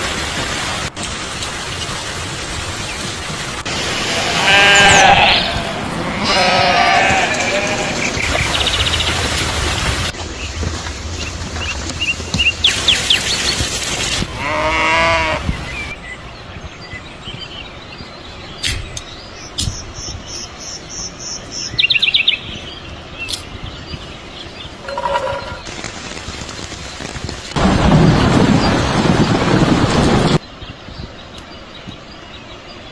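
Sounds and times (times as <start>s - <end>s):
outdoor background noise: 0.0s - 32.9s
farm animal calling: 3.9s - 8.1s.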